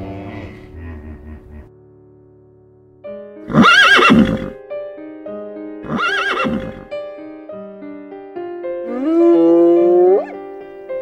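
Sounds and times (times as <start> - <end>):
soft background music: 0.0 - 11.0
horse whinnying: 3.5 - 4.6, 5.8 - 6.9.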